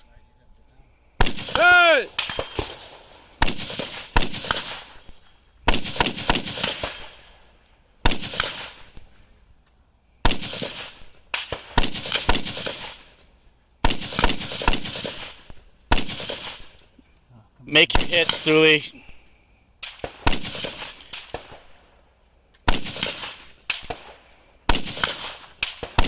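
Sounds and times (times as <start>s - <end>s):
rifle shots echoing: 1.2s - 4.9s, 17.7s - 18.9s, 24.7s - 26.0s.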